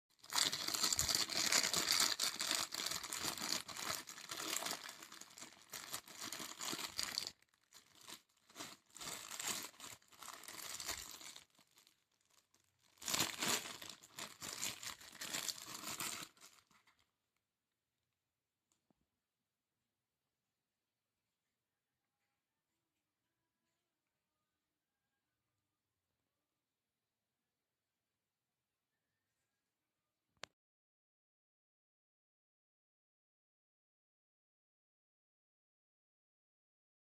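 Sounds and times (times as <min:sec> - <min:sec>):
plastic packaging crinkling: 0:00.2 - 0:17.1.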